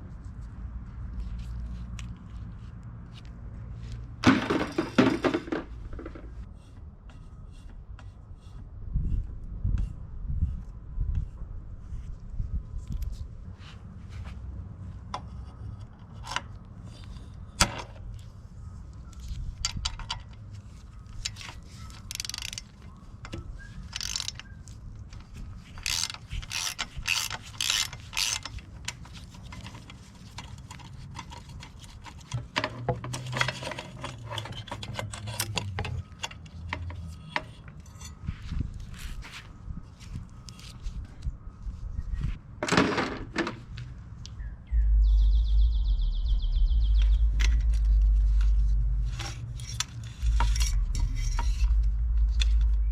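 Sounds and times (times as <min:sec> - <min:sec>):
metal clatter: 0:04.2 - 0:06.4, 0:47.1 - 0:52.9
ratcheting clicks: 0:21.0 - 0:32.4.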